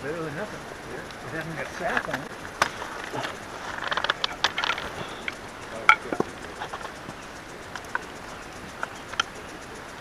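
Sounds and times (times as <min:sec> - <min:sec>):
wooden chair parts knocking: 0:01.4 - 0:07.2.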